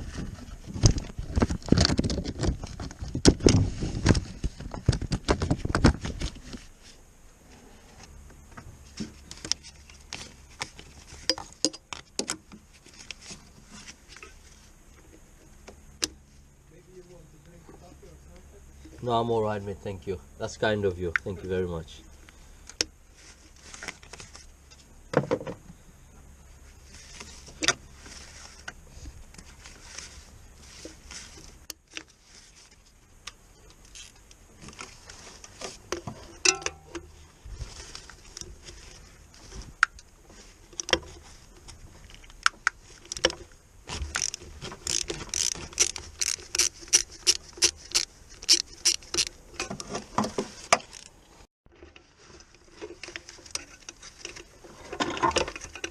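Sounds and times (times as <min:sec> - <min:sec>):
metallic clicks and knocks: 0:35.9 - 0:37.1
fast run of tool clicks: 0:44.1 - 0:49.4.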